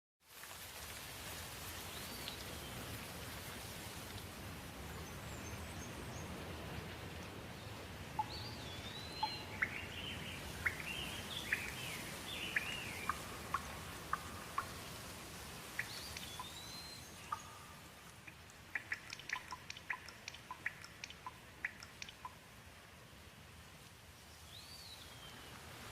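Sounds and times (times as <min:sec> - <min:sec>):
steady rain: 0:00.2 - 0:25.9
birds calling: 0:08.1 - 0:22.4
sharp ticks: 0:17.3 - 0:22.4.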